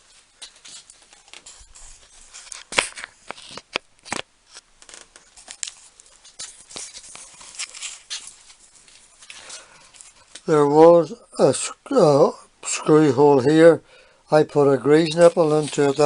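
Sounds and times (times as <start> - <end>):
handling clicks and rustles: 14.6 - 16.0.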